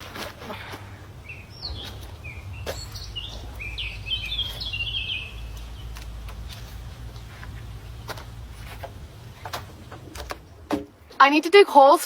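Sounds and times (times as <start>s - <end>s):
outdoor low rumble: 0.0s - 11.1s
bird chirping: 1.0s - 8.8s.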